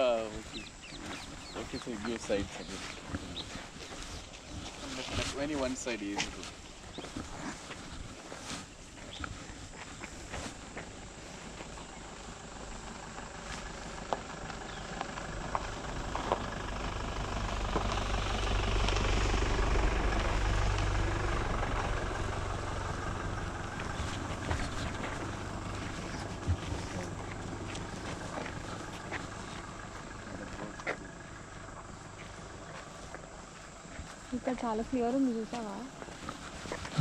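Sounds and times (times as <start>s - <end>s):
vehicle engine rumble passing: 10.5s - 37.0s.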